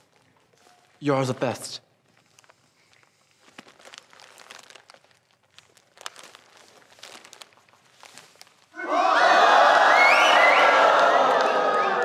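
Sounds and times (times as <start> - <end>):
paper wrapping crinkling: 0.0 - 8.8.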